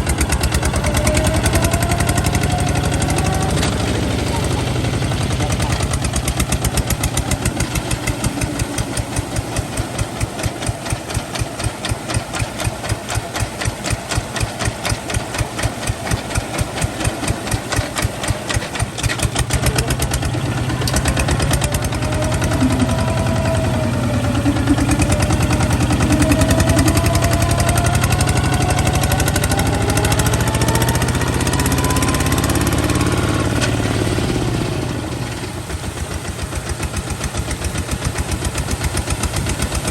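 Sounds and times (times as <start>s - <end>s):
diesel tractor engine chugging: 0.0s - 39.9s
faint rising whine: 19.4s - 35.5s.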